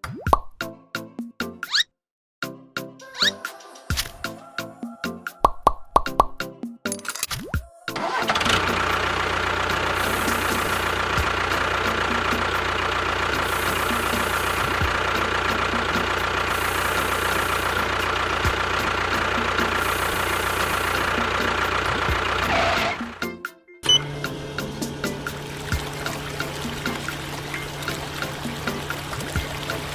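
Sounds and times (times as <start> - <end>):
motor humming with high whine: 8.3 - 23.0, 23.9 - 29.9.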